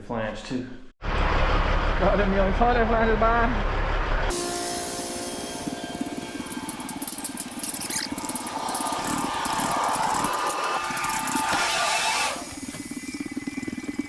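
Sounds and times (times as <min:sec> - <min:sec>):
engine running: 0:01.0 - 0:14.0
loud rushing noise: 0:04.3 - 0:12.8.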